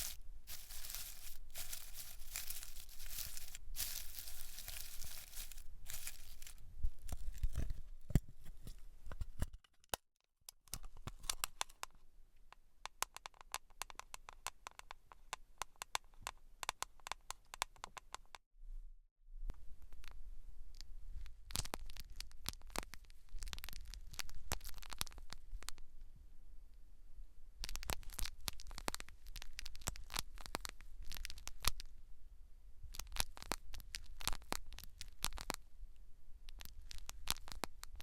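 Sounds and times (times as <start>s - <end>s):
scratchy rustle of hair: 0.0s - 6.6s
fine crackles and clicks: 19.9s - 25.8s, 27.6s - 31.9s, 32.9s - 35.6s, 36.5s - 38.0s.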